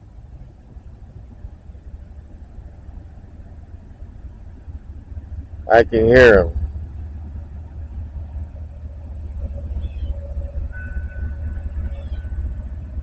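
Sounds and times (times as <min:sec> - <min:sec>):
diesel locomotives rumbling: 0:00.0 - 0:13.0
faint steady high tones: 0:08.5 - 0:13.0.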